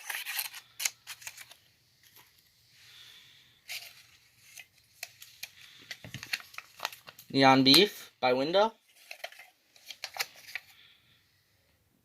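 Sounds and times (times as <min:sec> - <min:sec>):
paper rustling: 0:00.0 - 0:02.4, 0:03.6 - 0:07.9, 0:08.8 - 0:10.8.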